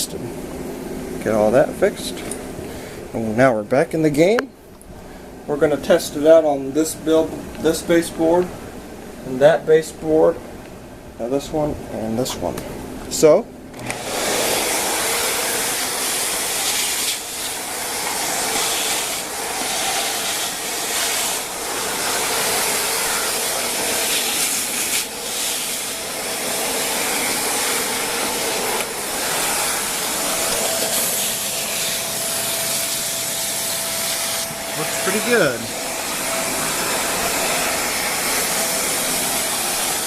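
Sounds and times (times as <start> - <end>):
upright vacuum running: 12.3 - 40.0.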